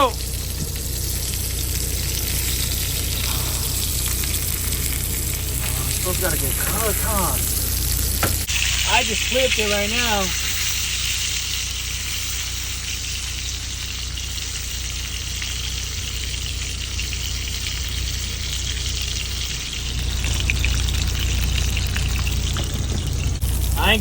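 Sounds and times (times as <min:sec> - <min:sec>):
low hum: 0:00.0 - 0:09.2, 0:14.2 - 0:24.0
steak sizzling in a frying pan: 0:00.0 - 0:24.0.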